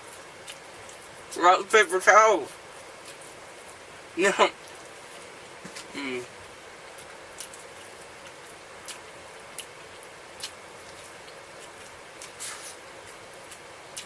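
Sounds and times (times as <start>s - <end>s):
wet chewing and lip-smacking: 0.0s - 1.4s, 2.7s - 3.8s, 6.9s - 14.0s
steady hiss: 0.0s - 14.0s.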